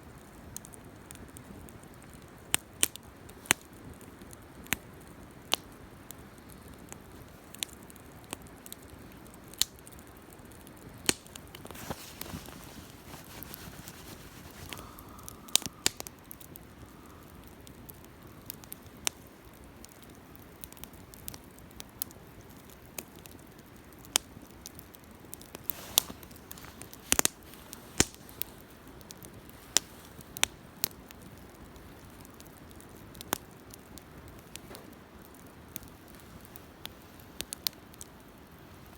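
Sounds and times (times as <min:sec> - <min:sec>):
campfire crackling: 0:00.0 - 0:38.9.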